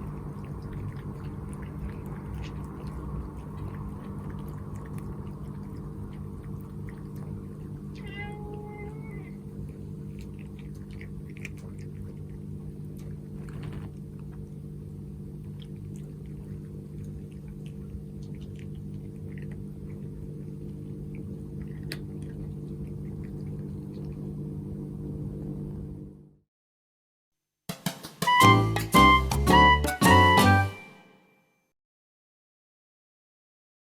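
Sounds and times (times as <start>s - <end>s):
cat lapping water: 0.0s - 25.6s
steady low hum: 0.0s - 26.4s.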